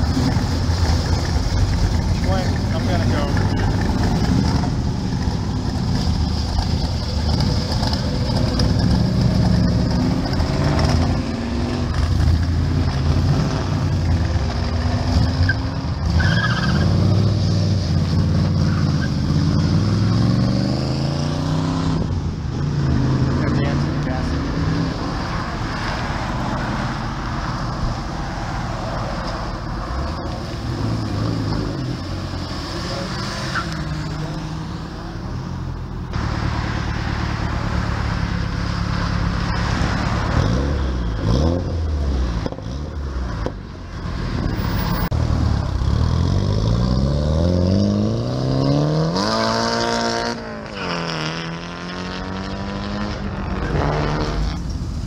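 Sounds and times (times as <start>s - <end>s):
car engines pulling away: 0.0s - 55.0s
car accelerating hard: 16.0s - 27.6s, 44.4s - 54.7s.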